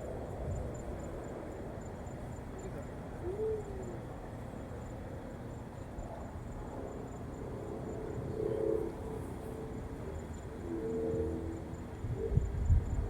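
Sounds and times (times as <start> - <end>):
low humming tone: 6.0 - 13.0.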